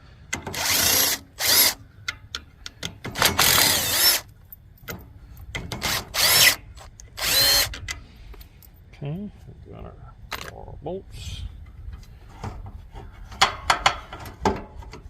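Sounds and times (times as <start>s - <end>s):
power drill whirring: 0.5s - 1.8s, 3.2s - 4.3s, 5.8s - 7.8s.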